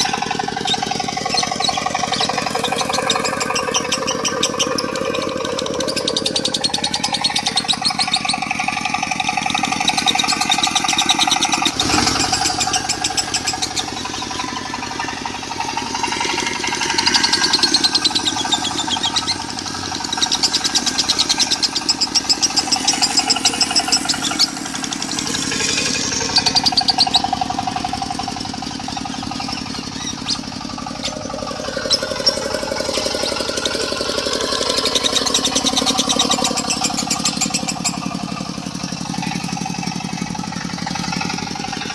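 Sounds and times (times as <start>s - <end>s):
diesel engine running: 0.0s - 41.9s
lovebird buzzing chatter: 0.0s - 41.9s.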